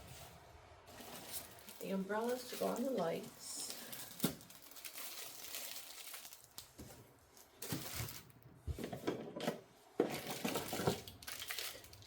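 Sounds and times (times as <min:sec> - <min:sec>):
packaging rustling: 0:00.9 - 0:08.4, 0:10.0 - 0:12.0.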